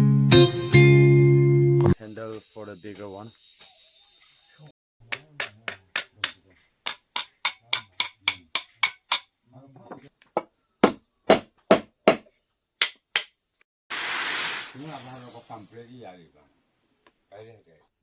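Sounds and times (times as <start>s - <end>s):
hand hammer blows: 5.1s - 9.2s.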